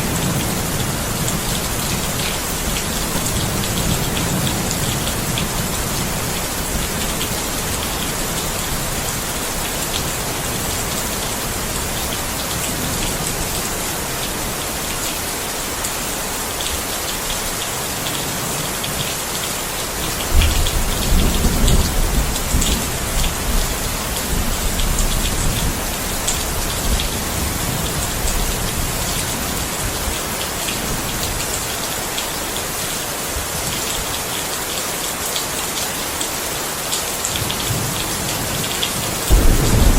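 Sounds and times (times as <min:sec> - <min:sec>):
rain falling: 0:00.0 - 0:39.9
thunder rumbling: 0:20.3 - 0:23.6, 0:39.3 - 0:39.9.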